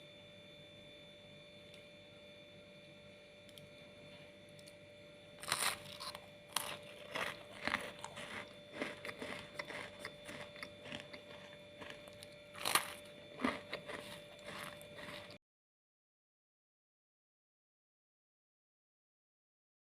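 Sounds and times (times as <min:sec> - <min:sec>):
crunchy pastry chewing: 0:05.4 - 0:15.4.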